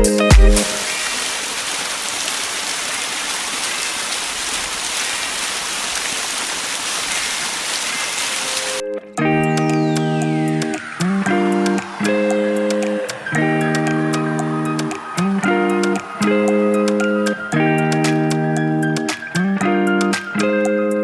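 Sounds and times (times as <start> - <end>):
dance music: 0.0 - 1.4, 9.3 - 20.3
waterfall rushing: 0.6 - 20.3
plucked guitar tune: 8.8 - 21.0.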